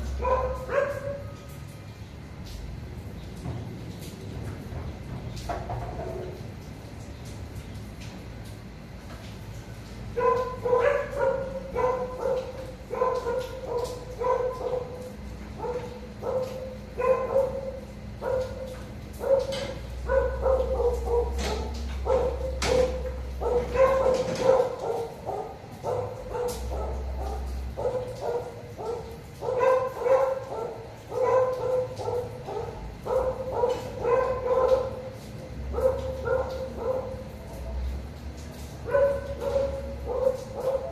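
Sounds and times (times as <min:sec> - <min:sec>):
dog barking: 0:00.2 - 0:01.4, 0:10.2 - 0:37.6, 0:38.8 - 0:40.9.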